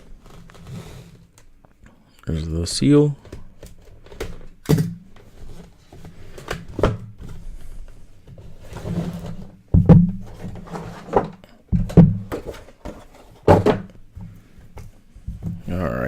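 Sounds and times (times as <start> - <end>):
wrapper and cardboard rustling: 0.0 - 1.4
box knocks: 9.7 - 10.6, 11.2 - 13.9.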